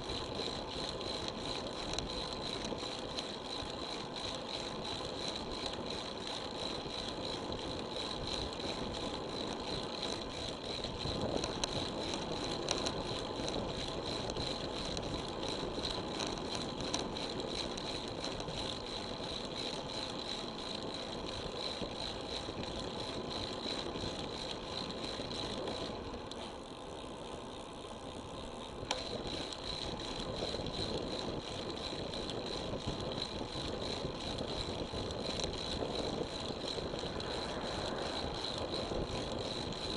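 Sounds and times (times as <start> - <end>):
bicycle rattling: 0.0 - 39.9
tyres on road: 35.3 - 39.9.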